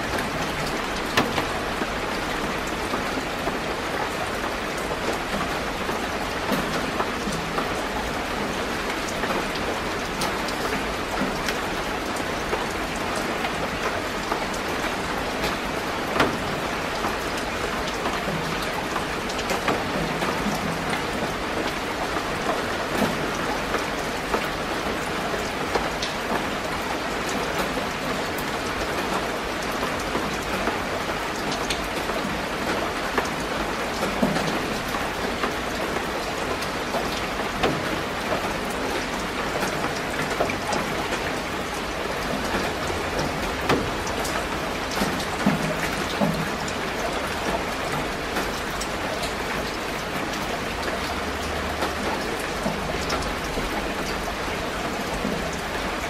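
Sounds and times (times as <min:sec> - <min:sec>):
rain pattering on leaves: 0:00.0 - 0:56.0.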